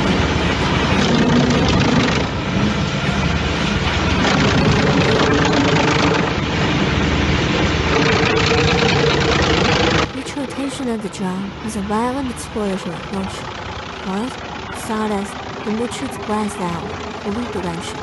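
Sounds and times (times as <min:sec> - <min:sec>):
heavy machinery engine under load: 0:00.0 - 0:10.2
rushing grinding noise: 0:00.0 - 0:10.2.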